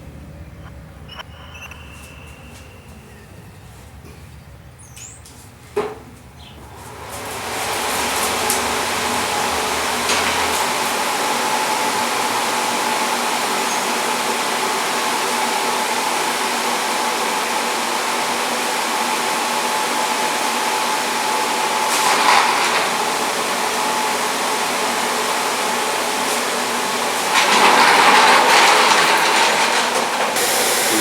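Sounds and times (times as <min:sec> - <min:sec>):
blower rushing air: 0:06.6 - 0:31.0.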